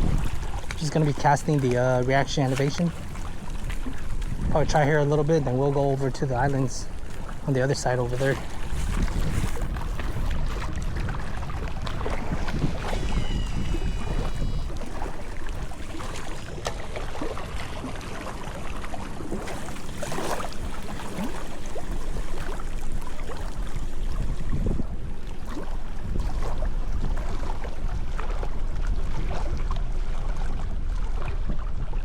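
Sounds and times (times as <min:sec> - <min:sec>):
wind buffeting microphone: 0:00.0 - 0:32.0
brief high thin tone: 0:12.3 - 0:15.4.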